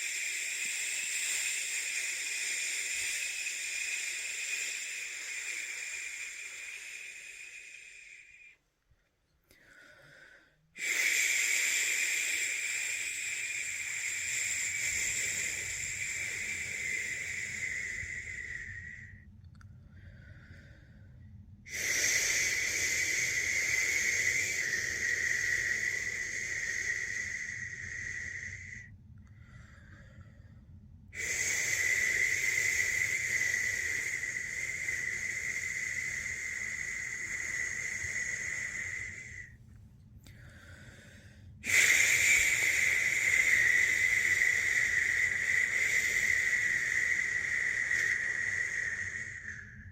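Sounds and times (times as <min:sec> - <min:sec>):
person shushing: 0:31.2 - 0:39.5.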